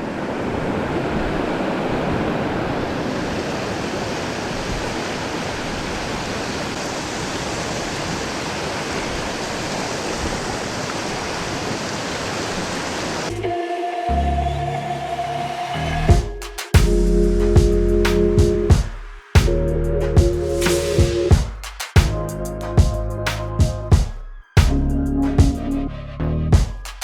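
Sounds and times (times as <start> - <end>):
river water rushing: 0.0 - 15.9.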